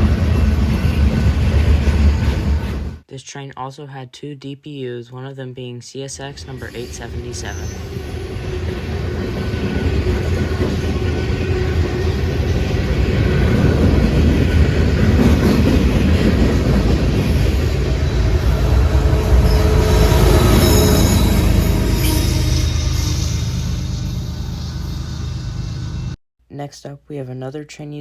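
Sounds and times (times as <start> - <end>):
freight train rumbling past: 0.0 - 3.0, 6.4 - 26.2
high wheel squeal: 6.6 - 15.2, 17.2 - 26.2.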